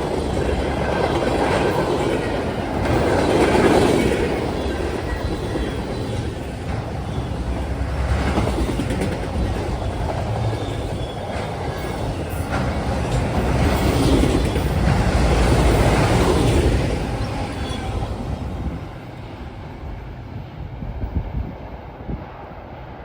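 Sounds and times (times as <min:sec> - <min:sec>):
wheels clicking over rail joints: 0:00.0 - 0:17.0
freight train rumbling past: 0:00.0 - 0:23.0.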